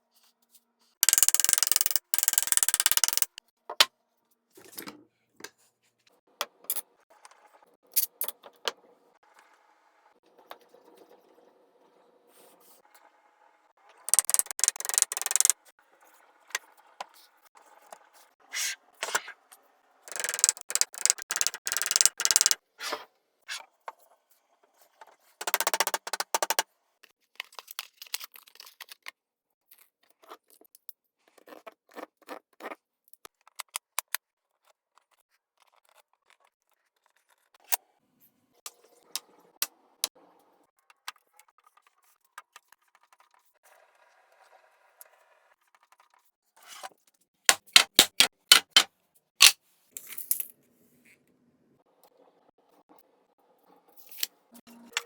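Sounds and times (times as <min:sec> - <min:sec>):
clicks and taps of wood and tools: 0:47.5 - 0:49.6.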